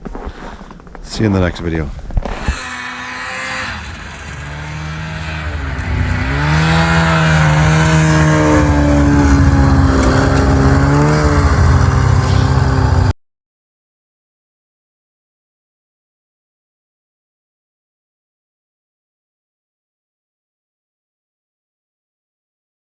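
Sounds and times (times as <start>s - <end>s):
snowmobile engine running: 2.2s - 13.2s.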